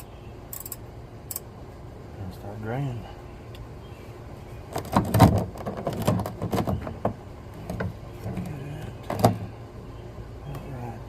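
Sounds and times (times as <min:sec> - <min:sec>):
clattering knocks and clicks: 0:04.7 - 0:09.4.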